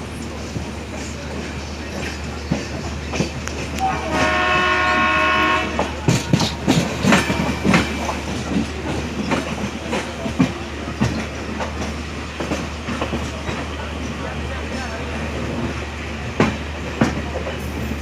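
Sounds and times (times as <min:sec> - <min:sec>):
train rumbling: 0:00.0 - 0:18.0
locomotive horn: 0:03.8 - 0:06.0
wheels clattering over rail joints: 0:05.7 - 0:18.0.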